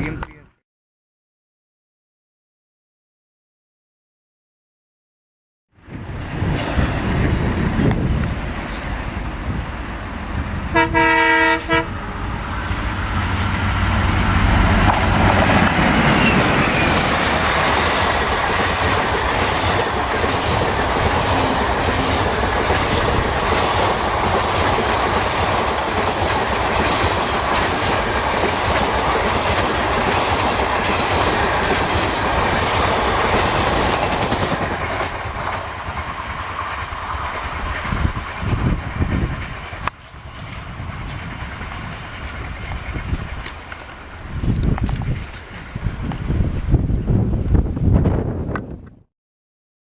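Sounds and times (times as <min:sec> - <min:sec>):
train engine and wheels passing: 0:05.8 - 0:48.8
train horn blast: 0:10.7 - 0:12.1.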